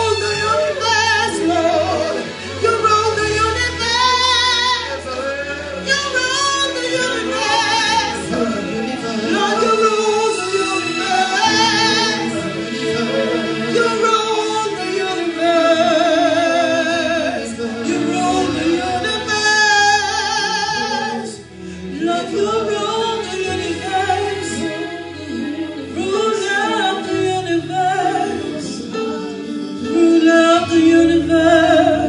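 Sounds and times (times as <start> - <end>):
singers with vibrato: 0.0 - 32.0
sustained bass accompaniment: 0.0 - 32.0.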